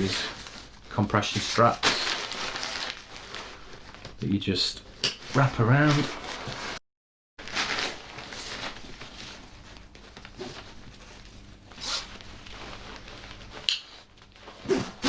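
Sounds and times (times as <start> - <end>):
fabric rustling: 0.0 - 4.1, 7.4 - 15.0.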